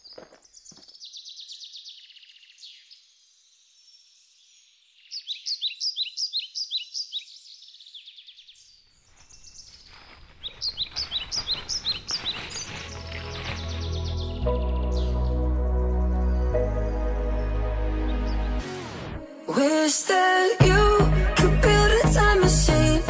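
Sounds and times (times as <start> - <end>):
birds chirping: 0.0 - 18.7
footsteps rustling through dry leaves: 8.9 - 14.7
music: 12.9 - 23.0.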